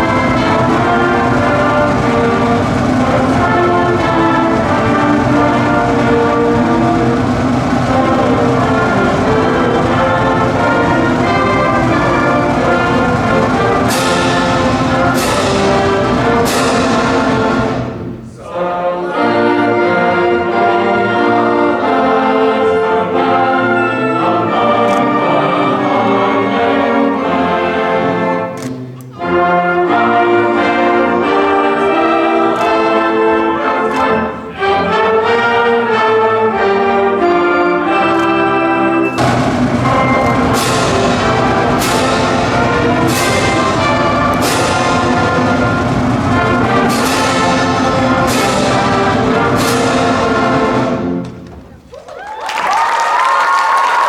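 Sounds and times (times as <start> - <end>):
cymbal crashes: 0.0 - 18.4, 39.1 - 51.4
marching band playing: 0.0 - 51.9.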